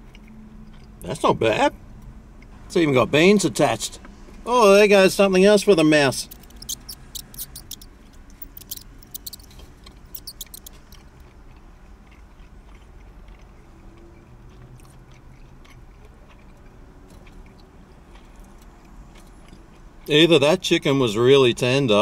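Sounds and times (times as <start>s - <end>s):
person chewing food: 6.3s - 20.0s.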